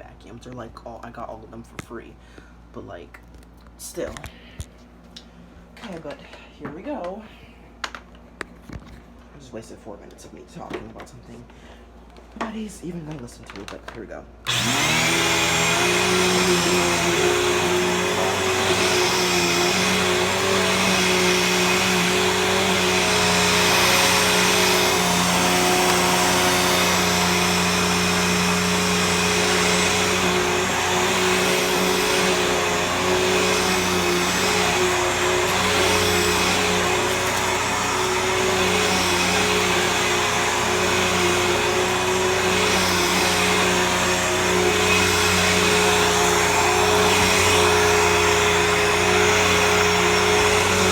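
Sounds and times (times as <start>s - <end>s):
vacuum cleaner motor whine: 14.4s - 50.9s.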